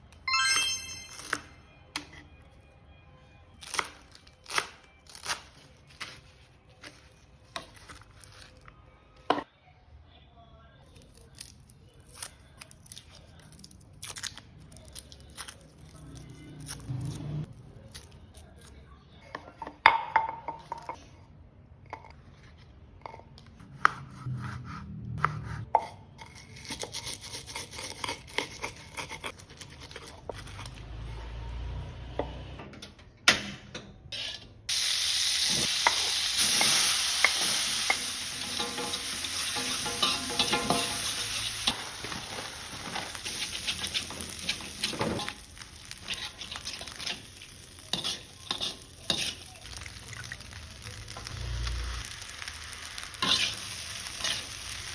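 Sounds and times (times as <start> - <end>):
food sizzling in hot oil: 34.7 - 54.9
spatula stirring in pan: 39.5 - 49.7, 53.2 - 54.8.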